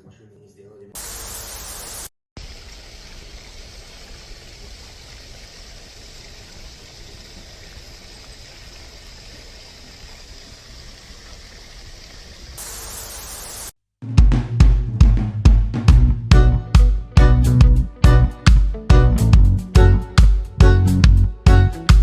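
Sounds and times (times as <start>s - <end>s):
steady hissing noise: 1.0s - 13.7s.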